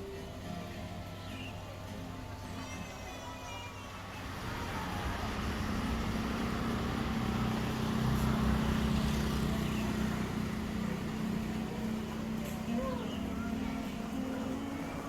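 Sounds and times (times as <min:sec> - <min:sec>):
vehicle engine rumbling: 0:04.1 - 0:15.0.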